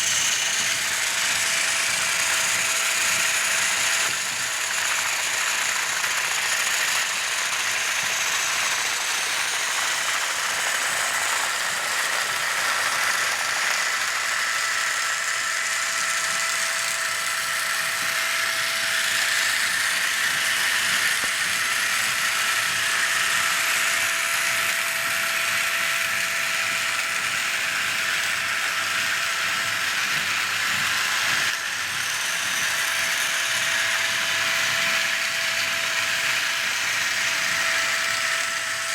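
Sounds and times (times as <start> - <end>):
toy train motor whine: 0.0 - 38.9.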